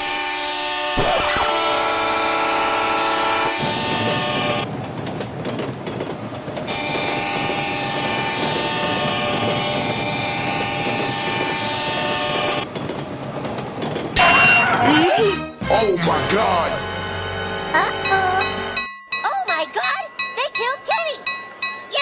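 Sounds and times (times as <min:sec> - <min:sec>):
train horn: 0:00.0 - 0:04.7, 0:06.7 - 0:12.7
train wheels clattering: 0:03.4 - 0:14.7.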